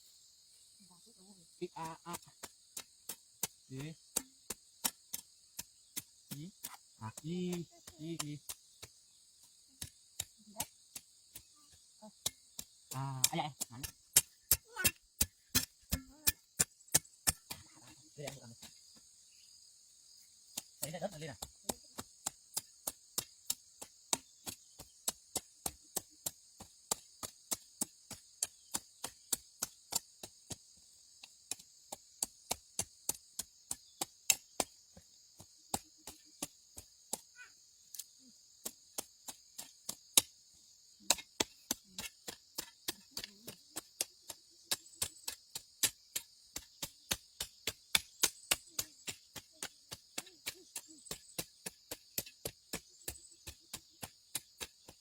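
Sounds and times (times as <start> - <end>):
insects chorus: 0.0 - 55.0.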